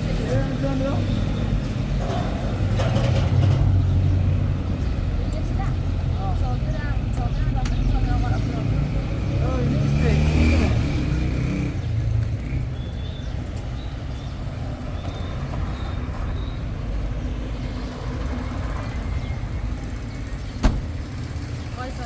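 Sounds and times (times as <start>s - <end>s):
car engine rumbling: 0.0s - 11.2s.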